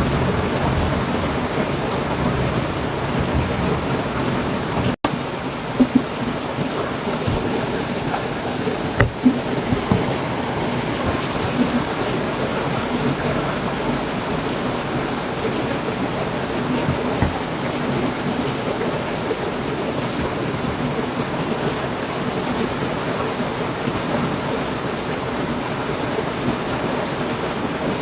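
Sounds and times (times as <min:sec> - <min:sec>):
heavy rain: 0:00.0 - 0:28.0
low thuds: 0:07.2 - 0:12.0.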